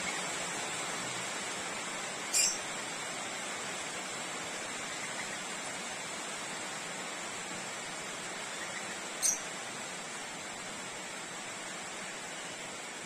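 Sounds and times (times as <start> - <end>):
background hiss: 0.0 - 13.0
bird chirp: 2.3 - 2.6, 8.6 - 9.4.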